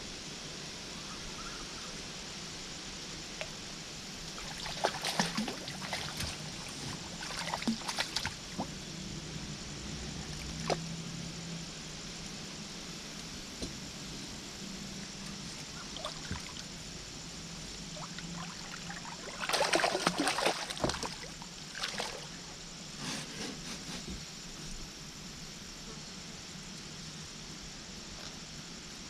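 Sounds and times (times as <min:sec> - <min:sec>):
water trickling: 0:04.2 - 0:08.7, 0:15.6 - 0:16.9, 0:17.8 - 0:22.4
water splashing: 0:04.3 - 0:08.7, 0:15.7 - 0:16.7, 0:17.9 - 0:22.4.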